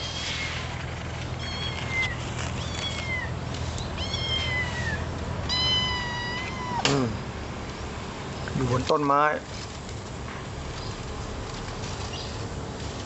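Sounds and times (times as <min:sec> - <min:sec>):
cat meowing: 0:01.4 - 0:03.4, 0:04.0 - 0:06.9.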